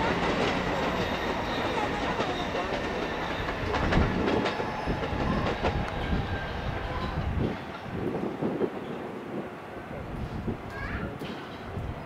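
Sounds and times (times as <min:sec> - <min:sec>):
train wheels clacking over rail joints: 0:00.0 - 0:08.1, 0:10.7 - 0:11.9.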